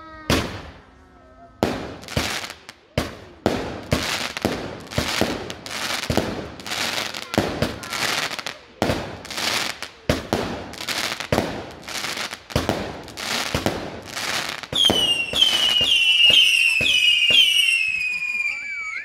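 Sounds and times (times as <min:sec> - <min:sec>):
fireworks bangs: 0:00.2 - 0:01.0, 0:01.6 - 0:19.0
fireworks crackling: 0:00.2 - 0:01.0, 0:01.6 - 0:19.0
fireworks whistles: 0:11.9 - 0:19.0.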